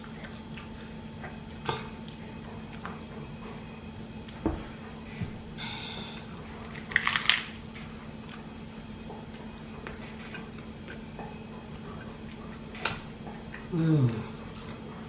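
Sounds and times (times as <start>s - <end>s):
quiet chewing with mouth clicks: 0.0s - 3.0s, 9.2s - 15.0s
person humming mmm: 13.6s - 14.8s.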